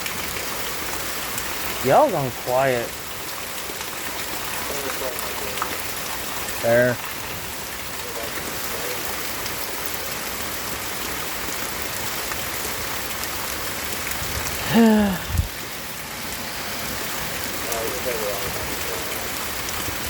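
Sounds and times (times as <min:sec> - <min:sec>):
rain falling: 0:00.0 - 0:20.0
short falling voice: 0:14.6 - 0:15.5.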